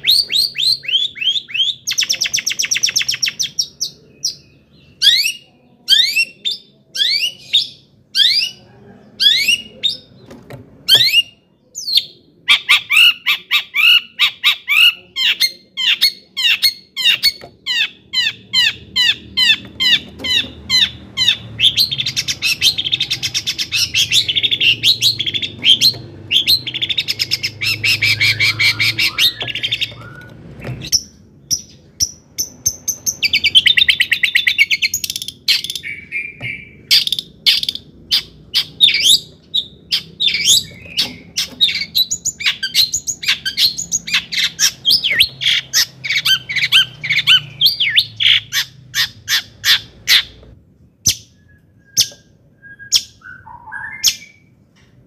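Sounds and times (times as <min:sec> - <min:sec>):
bird trilling and chirping: 0:00.0 - 0:54.5.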